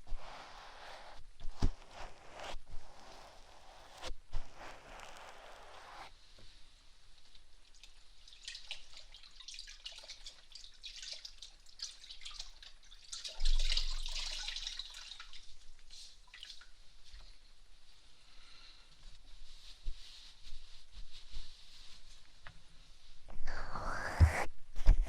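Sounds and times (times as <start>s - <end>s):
damp towel rubbing on microphone: 0.0s - 6.1s, 19.0s - 25.0s.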